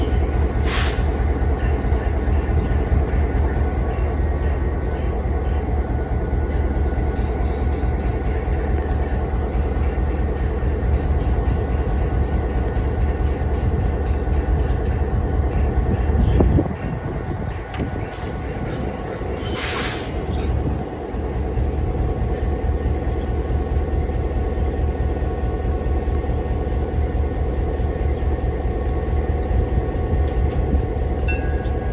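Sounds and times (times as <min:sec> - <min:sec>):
locomotive engine rumbling: 0:00.0 - 0:31.9
brief hiss: 0:00.6 - 0:01.1.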